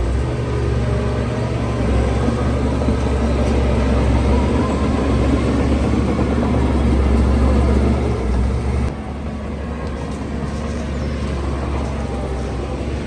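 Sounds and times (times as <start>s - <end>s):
diesel engine rumble: 0.0s - 13.0s.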